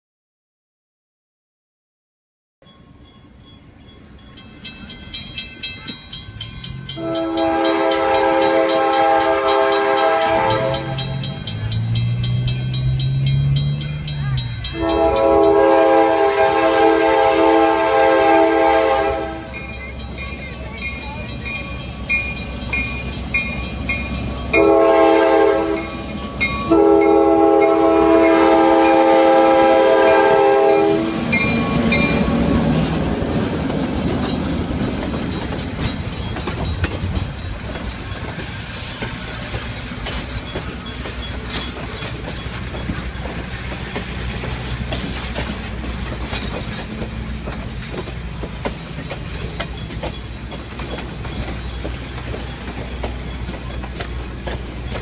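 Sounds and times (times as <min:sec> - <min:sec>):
train cars rumbling past: 0:02.7 - 0:55.0
locomotive air horn: 0:07.0 - 0:11.2, 0:14.7 - 0:19.6, 0:24.5 - 0:26.0, 0:26.7 - 0:32.2
wheels clicking: 0:31.1 - 0:55.0.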